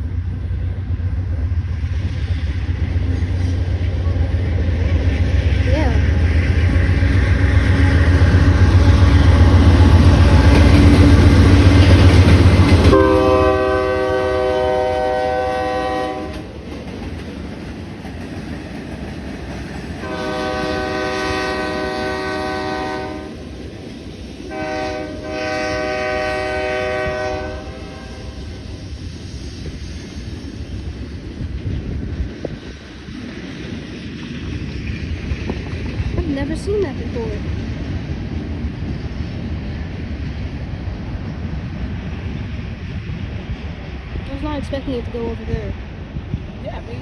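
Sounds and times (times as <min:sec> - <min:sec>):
diesel locomotives rumbling: 0:00.0 - 0:47.0
train air horn blasts: 0:12.9 - 0:16.5, 0:20.0 - 0:23.4, 0:24.5 - 0:28.5.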